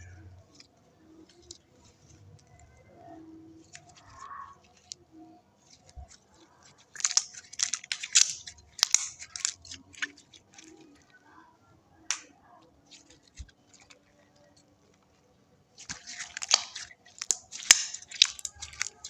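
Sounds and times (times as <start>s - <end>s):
slime squished by hand: 0.4s - 11.2s, 15.8s - 19.0s.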